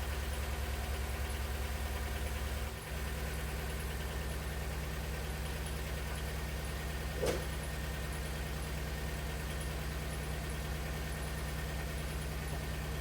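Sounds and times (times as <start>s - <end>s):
car engine idling: 0.0s - 13.0s
short knock: 7.2s - 7.5s.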